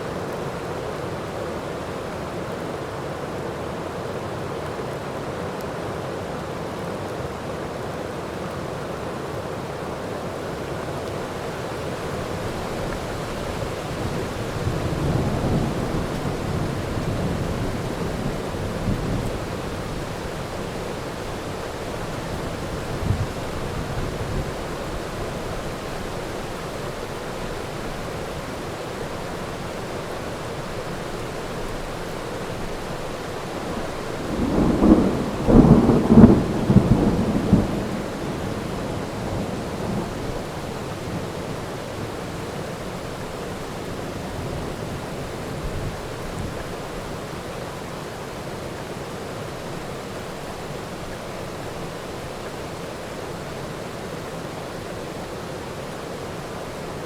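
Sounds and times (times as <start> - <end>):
heavy rain: 0.0 - 57.0
thunderclap: 34.1 - 40.1.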